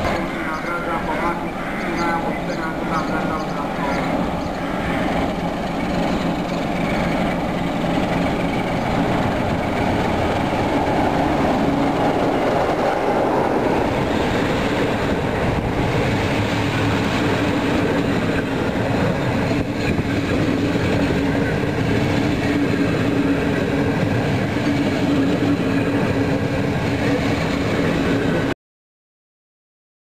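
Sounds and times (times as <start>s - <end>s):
coach wheels rumbling on rails: 0.0s - 28.5s
diesel locomotive engine: 0.0s - 28.6s.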